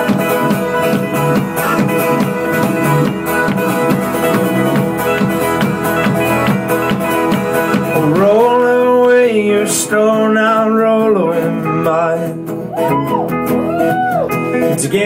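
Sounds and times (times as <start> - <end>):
kick-drum beat: 0.0 - 8.8
strummed acoustic strings: 0.0 - 12.7.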